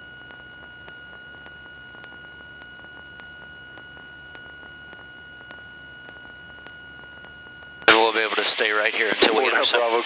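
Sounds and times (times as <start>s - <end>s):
faint ticks: 0.0s - 7.9s
electronic whine: 0.0s - 10.0s.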